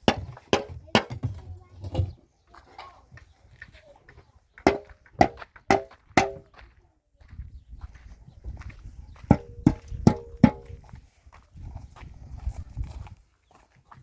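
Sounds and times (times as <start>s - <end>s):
ringing metallic knocks: 4.7s - 6.5s, 9.3s - 10.8s.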